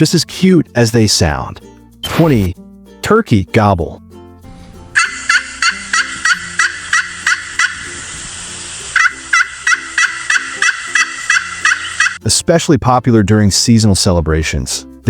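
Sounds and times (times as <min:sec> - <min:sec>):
turkey gobbling: 0:05.0 - 0:12.2.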